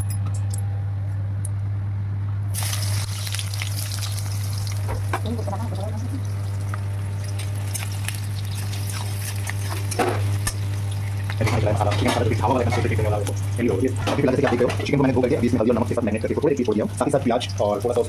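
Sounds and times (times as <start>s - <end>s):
steady low hum: 0.0s - 18.0s
food sizzling in hot oil: 2.5s - 13.8s.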